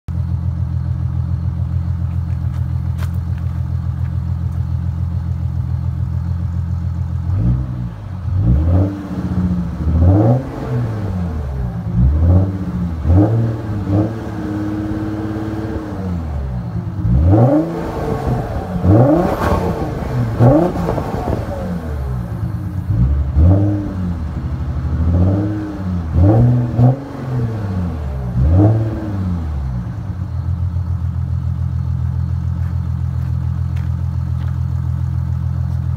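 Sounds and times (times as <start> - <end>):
diesel engine idling and revving: 0.1 - 35.9.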